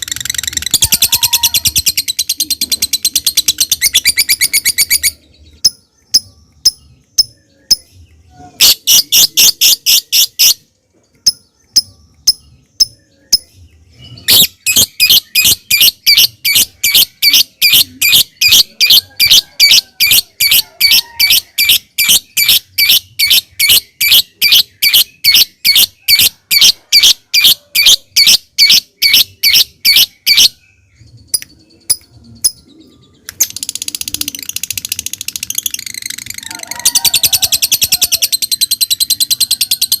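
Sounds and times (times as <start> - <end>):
lovebird rapid high chattering: 0.0 - 7.9, 8.6 - 10.6, 14.2 - 30.5, 33.3 - 40.0
lovebird ticking calls: 0.0 - 7.9.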